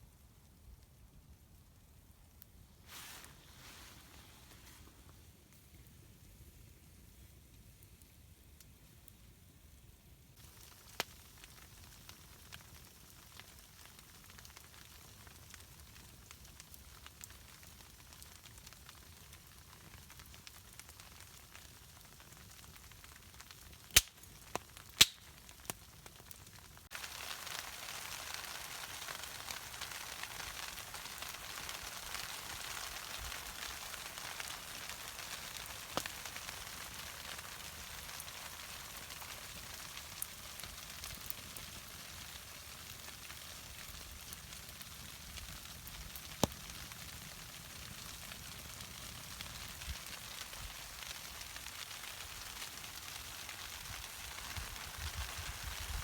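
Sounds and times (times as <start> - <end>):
campfire hissing and crackling: 0.0 - 56.0
sharp fire pops: 23.4 - 56.0.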